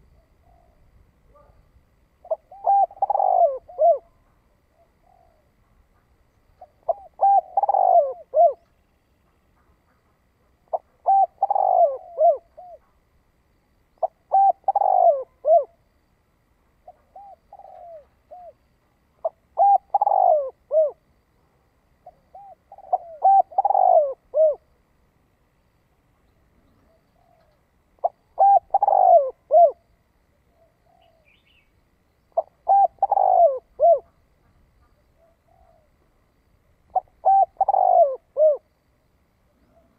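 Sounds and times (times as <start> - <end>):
dove cooing: 0.0 - 5.8, 6.6 - 8.8, 10.7 - 13.0, 14.0 - 15.8, 16.8 - 21.1, 22.0 - 24.8, 26.6 - 31.7, 32.4 - 36.1, 36.9 - 38.8, 39.5 - 39.9.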